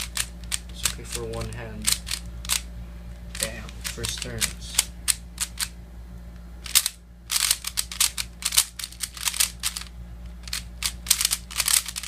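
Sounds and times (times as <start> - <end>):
plastic puzzle cube clicking: 1.8 - 2.6, 6.6 - 12.0.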